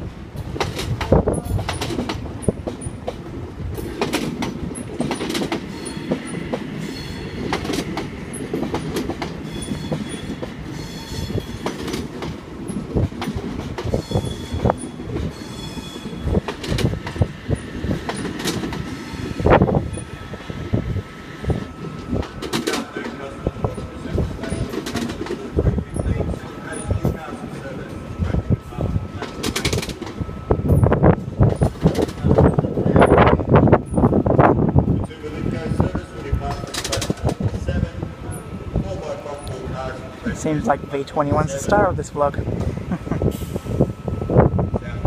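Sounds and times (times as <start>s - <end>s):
train rumble: 0.0s - 45.0s
train wheels clacking over joints: 0.4s - 20.1s, 21.5s - 28.4s, 29.2s - 34.1s, 35.0s - 40.0s
high wheel squeals: 9.4s - 11.6s, 14.0s - 16.3s.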